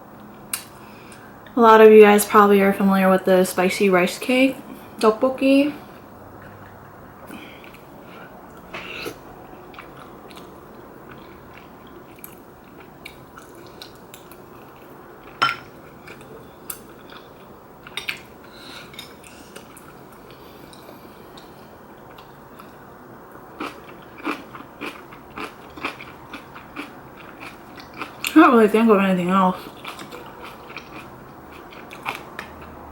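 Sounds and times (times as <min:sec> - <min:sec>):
wet chewing and mouth sounds: 0:06.4 - 0:18.3, 0:23.6 - 0:28.4, 0:29.6 - 0:32.8.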